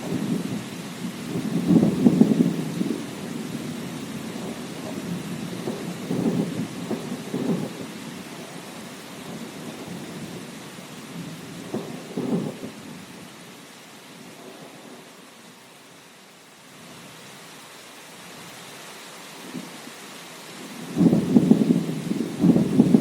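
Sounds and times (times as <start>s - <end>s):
rolling thunder: 0.0s - 8.5s, 11.1s - 13.0s, 20.8s - 23.0s
steady rain: 0.0s - 23.0s.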